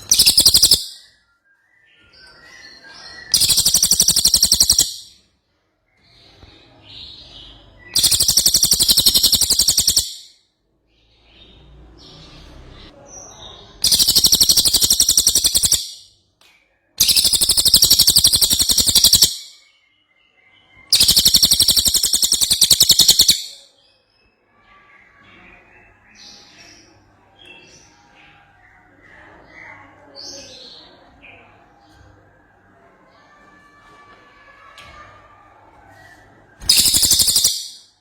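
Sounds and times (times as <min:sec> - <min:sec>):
songbird trilling: 0:00.0 - 0:01.0, 0:03.4 - 0:05.1, 0:08.0 - 0:10.3, 0:13.8 - 0:16.0, 0:17.0 - 0:19.5, 0:21.0 - 0:23.6, 0:36.6 - 0:37.8
soft bird twittering: 0:00.0 - 0:05.2, 0:07.2 - 0:10.4, 0:11.4 - 0:16.1, 0:17.0 - 0:32.2, 0:36.2 - 0:38.0.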